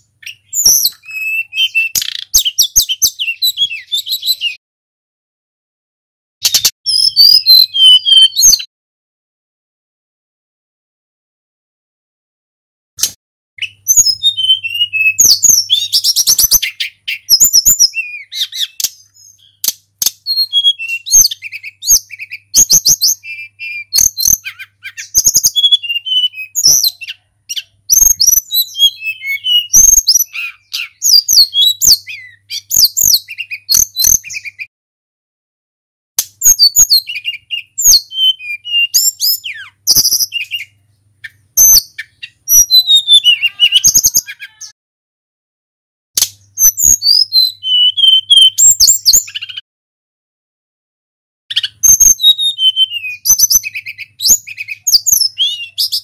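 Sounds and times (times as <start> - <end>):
bird singing whistled phrases: 0.0 - 4.6, 6.4 - 8.7, 13.6 - 34.7, 36.4 - 44.8, 46.4 - 49.6, 51.5 - 56.0.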